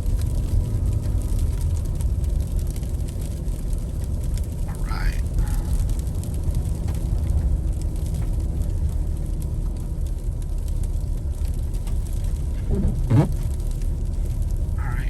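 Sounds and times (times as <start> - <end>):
car engine rumble in cabin: 0.0 - 15.0
tyres on snow: 11.5 - 15.0.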